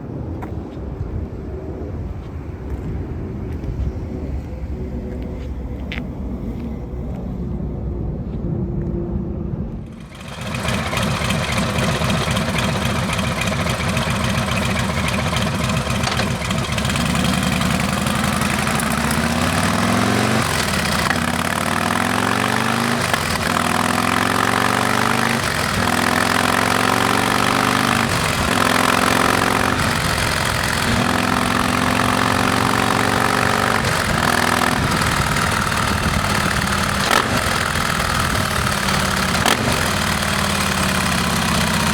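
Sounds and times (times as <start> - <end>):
motorcycle engine: 9.7 - 41.9.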